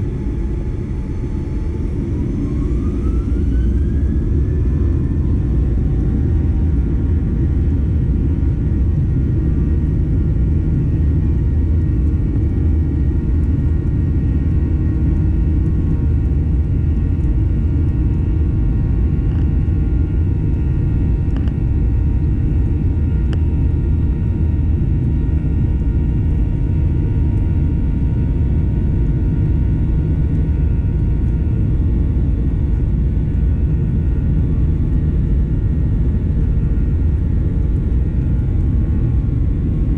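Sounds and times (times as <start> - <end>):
airplane cabin rumble: 0.0 - 39.9
faint steady engine tones: 0.0 - 39.9.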